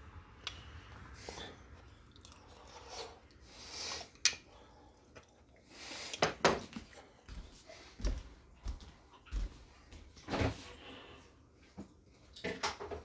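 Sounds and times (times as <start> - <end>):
man chewing: 1.8 - 4.4.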